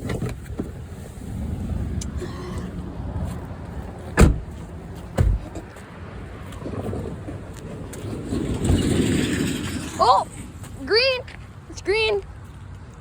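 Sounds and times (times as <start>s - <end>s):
rumble of road vehicles: 0.0s - 13.0s
sharp knocks: 5.2s - 5.6s.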